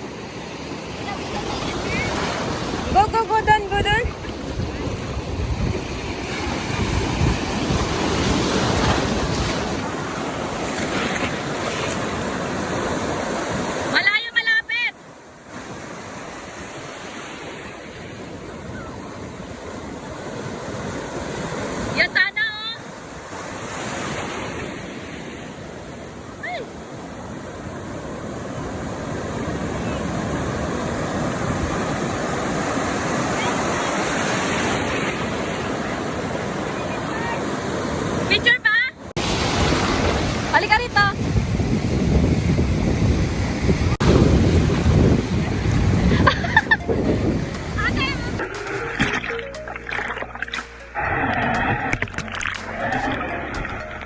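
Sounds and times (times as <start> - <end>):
wind on microphone: 0.0 - 9.9, 39.2 - 49.2
ocean surf washing ashore: 0.0 - 50.2.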